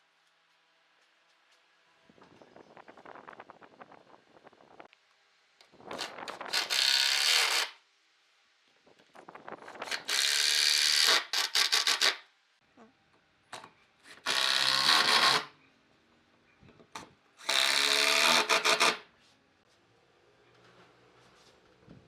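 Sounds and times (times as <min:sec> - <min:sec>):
power tool bursts: 0:06.0 - 0:07.8, 0:14.1 - 0:15.5, 0:17.4 - 0:19.0.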